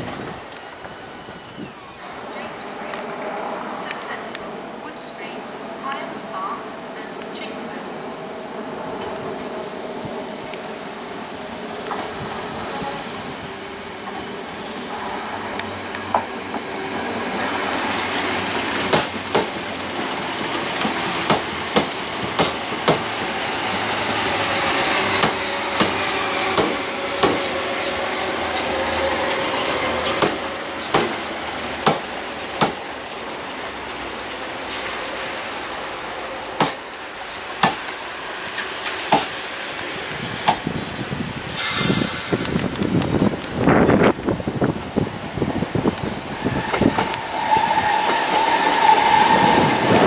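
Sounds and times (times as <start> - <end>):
train rumble and hiss: 0.0 - 50.0
train wheels clicking over rail joints: 18.4 - 28.0, 29.7 - 32.9, 37.5 - 40.8.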